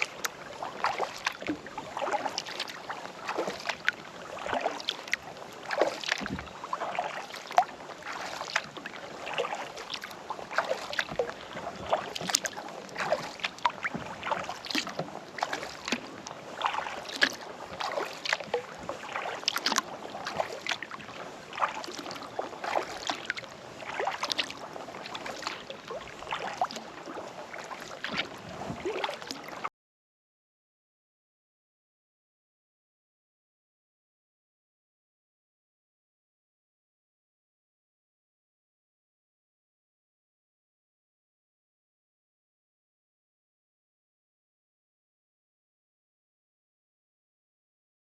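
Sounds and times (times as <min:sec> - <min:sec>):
water dripping from paddle: 0:00.0 - 0:29.6
kayak paddle splashing in water: 0:00.0 - 0:29.7.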